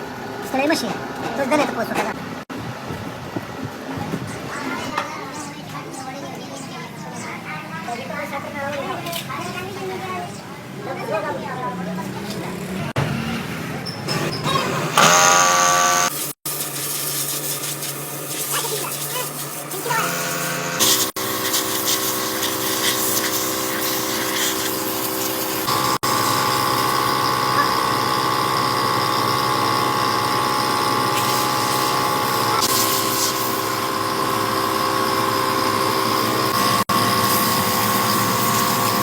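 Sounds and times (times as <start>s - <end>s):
machine motor humming: 14.2s - 16.4s, 19.5s - 39.0s.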